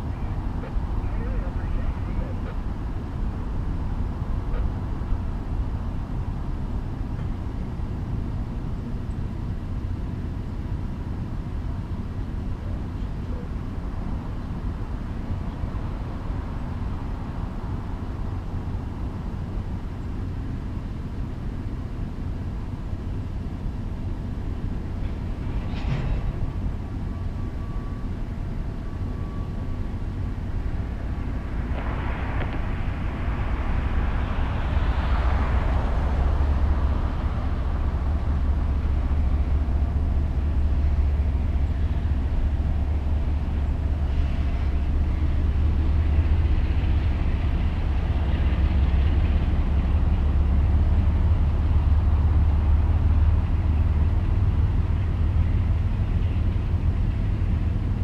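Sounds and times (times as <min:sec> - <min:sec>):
freight train rumbling: 0:00.0 - 0:58.0
rattling and scraping noise: 0:25.0 - 0:26.6.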